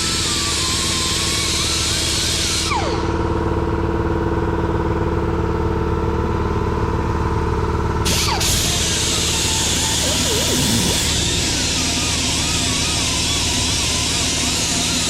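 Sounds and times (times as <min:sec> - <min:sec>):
pressure washer engine running: 0:08.0 - 0:15.0
short falling whine: 0:08.6 - 0:14.8.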